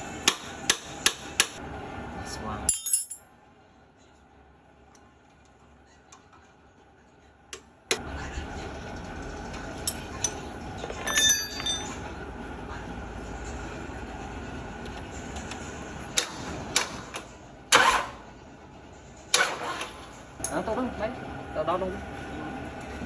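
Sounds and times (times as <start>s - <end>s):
steady background noise: 0.0s - 23.0s
metal clinks: 2.7s - 3.2s, 9.8s - 12.0s.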